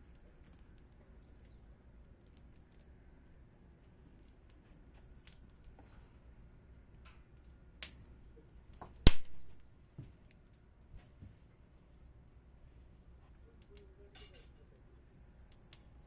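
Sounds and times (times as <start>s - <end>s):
wood fire crackling: 0.0s - 16.0s
sharp loud pop: 9.1s - 9.6s.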